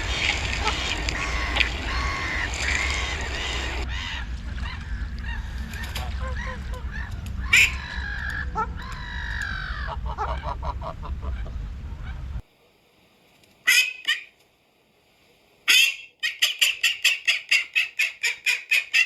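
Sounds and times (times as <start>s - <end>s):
ducks quacking: 0.0s - 12.4s
geese honking: 0.0s - 12.4s, 13.7s - 14.3s
steady low rumble: 0.0s - 12.4s.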